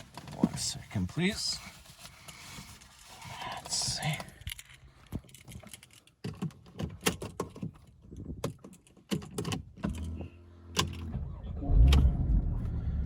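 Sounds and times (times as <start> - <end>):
clicks and knocks of handling: 3.7 - 10.2
car engine hum: 9.7 - 13.0.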